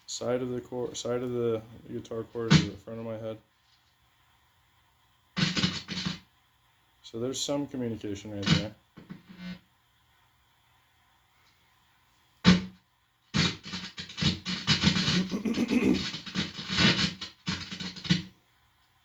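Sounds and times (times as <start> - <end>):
guitar amplifier crackling and buzzing: 5.4 - 6.2, 8.5 - 9.6, 12.4 - 18.3.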